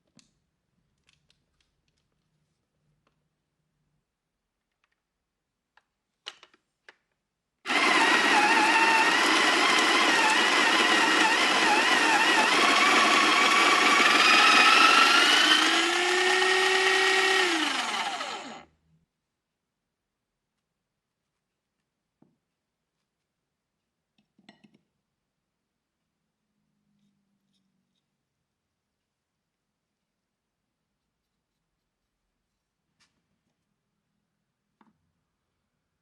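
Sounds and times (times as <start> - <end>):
kitchen appliance motor running: 7.7 - 18.7.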